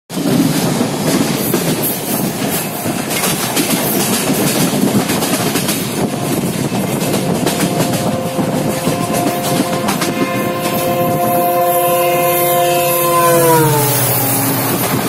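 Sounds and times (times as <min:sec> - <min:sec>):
wheels clicking over rail joints: 0:00.1 - 0:11.4
rumble of wheels on rails: 0:00.1 - 0:15.0.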